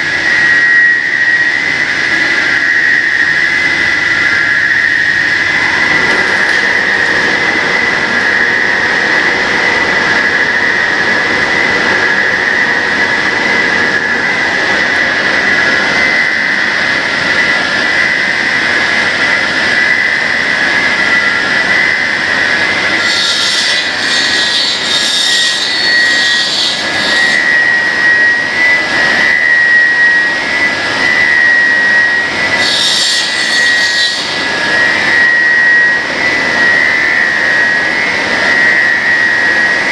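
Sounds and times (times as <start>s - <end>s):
cutting machine whining: 0.0s - 39.9s.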